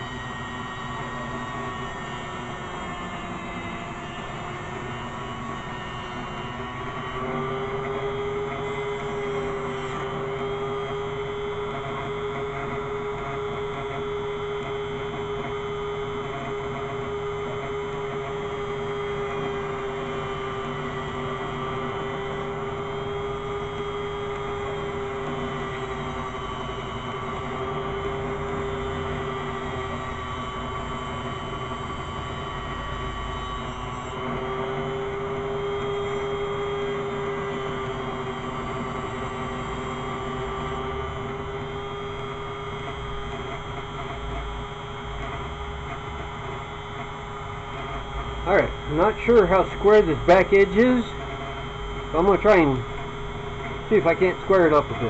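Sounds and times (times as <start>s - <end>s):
electric grinder grinding steel blade: 0.0s - 14.4s.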